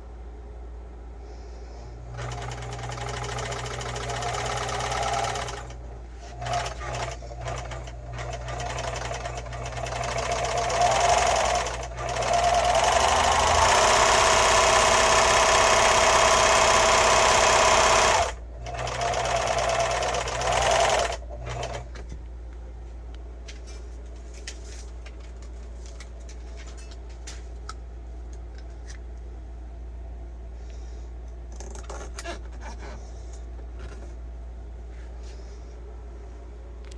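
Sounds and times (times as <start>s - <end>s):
serger sewing machine running: 2.0s - 22.0s.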